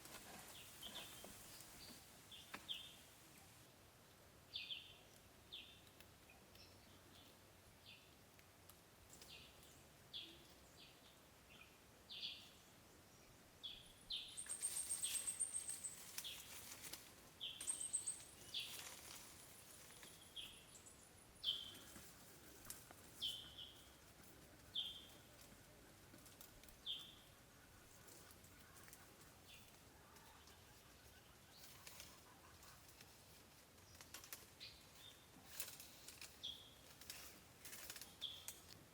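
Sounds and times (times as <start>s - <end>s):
faint bird chirps: 9.1s - 16.7s, 17.4s - 24.0s.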